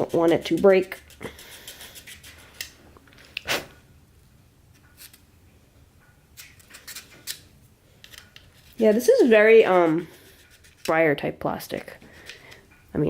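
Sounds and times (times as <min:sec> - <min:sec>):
short scrape: 0:03.4 - 0:03.8.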